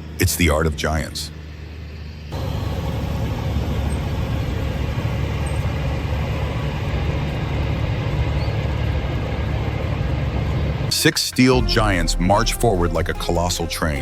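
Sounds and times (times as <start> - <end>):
heavy vehicle rumbling: 2.3 - 10.9, 11.5 - 14.0.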